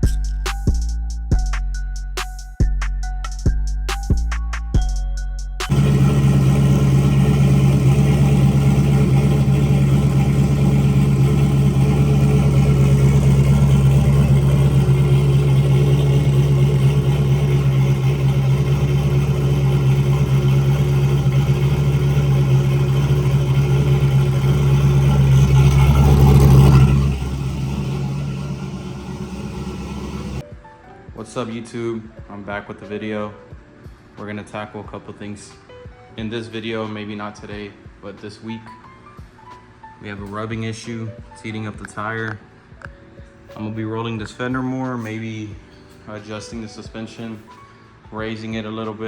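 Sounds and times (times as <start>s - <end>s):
car engine idling: 5.6s - 30.4s
engine revving: 5.7s - 30.4s.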